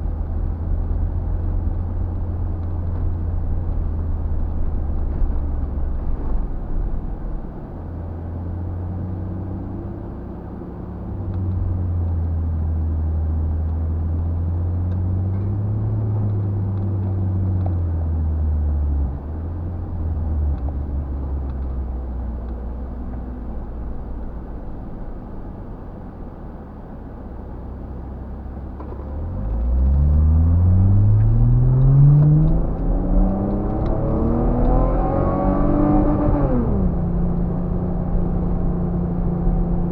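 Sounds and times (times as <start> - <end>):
off-road vehicle engine revving: 29.2 - 39.9.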